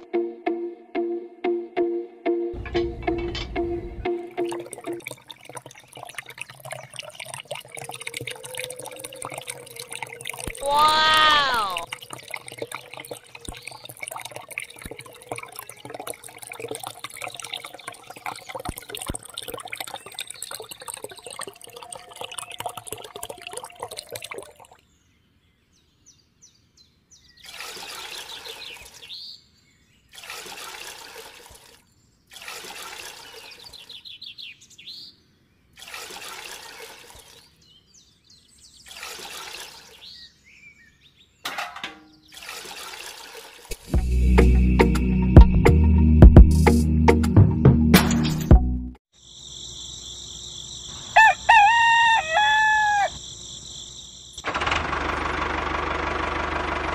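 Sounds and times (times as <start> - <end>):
water splashing and trickling: 2.6 - 25.1, 27.2 - 34.8, 35.6 - 44.4.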